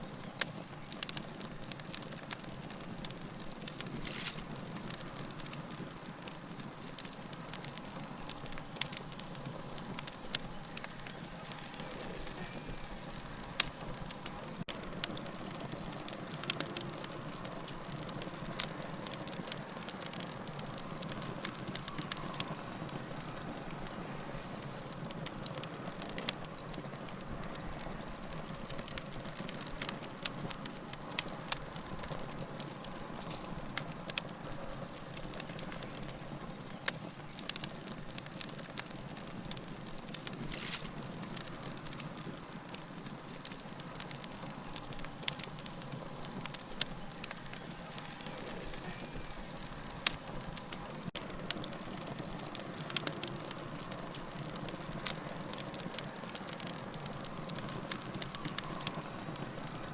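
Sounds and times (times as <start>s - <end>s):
soft hiss of flame: 0.0s - 59.9s
wood fire crackling and popping: 0.0s - 59.9s.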